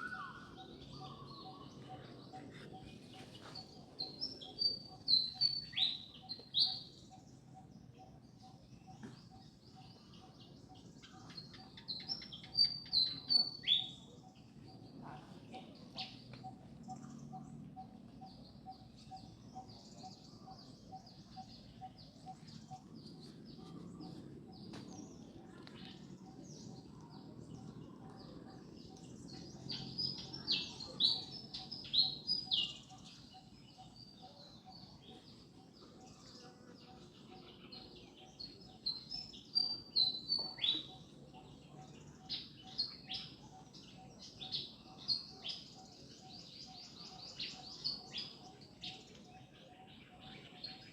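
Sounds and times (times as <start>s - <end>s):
birds chirping: 0.0s - 50.9s.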